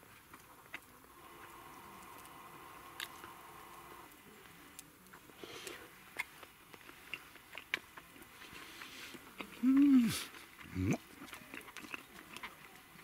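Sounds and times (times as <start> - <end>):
person chewing meat: 2.0 - 3.8, 5.0 - 13.0.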